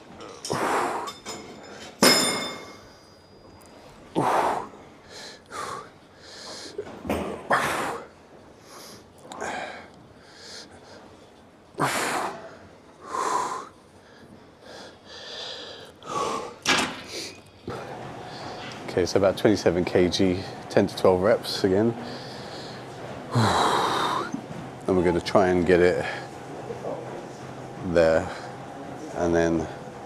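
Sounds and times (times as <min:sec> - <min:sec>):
gym weights clanking: 0:00.1 - 0:03.6
man breathing heavily: 0:00.5 - 0:02.0, 0:04.1 - 0:06.8, 0:07.5 - 0:11.1, 0:11.8 - 0:18.8, 0:22.0 - 0:24.5.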